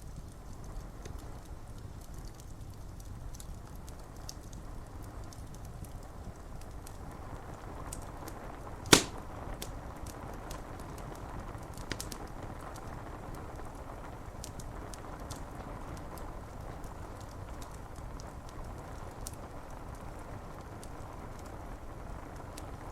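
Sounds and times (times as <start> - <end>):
wood fire crackling: 0.0 - 22.8
loud sharp pop: 8.9 - 9.2.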